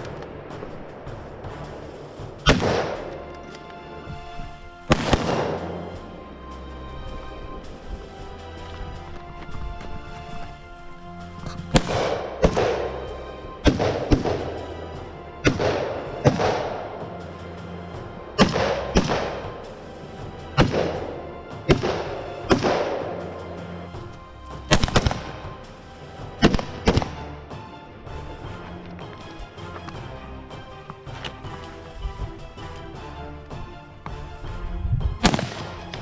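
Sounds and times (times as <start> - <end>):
rifle shots echoing: 2.4 - 3.7, 4.9 - 6.0.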